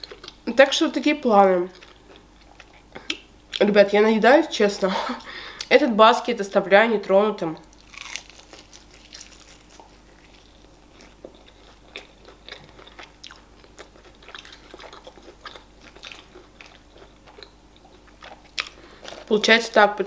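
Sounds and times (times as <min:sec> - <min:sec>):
person chewing crispy chicken: 0:07.7 - 0:19.3.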